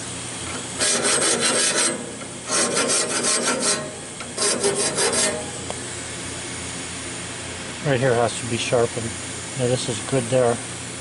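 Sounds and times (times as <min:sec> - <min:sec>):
steady hum: 0:00.0 - 0:11.0
saw blade teeth being filed: 0:00.8 - 0:05.5.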